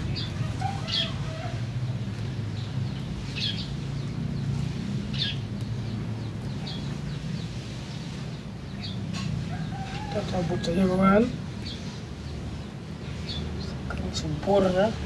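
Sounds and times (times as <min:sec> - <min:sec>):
small bird chirping: 0:00.0 - 0:14.8.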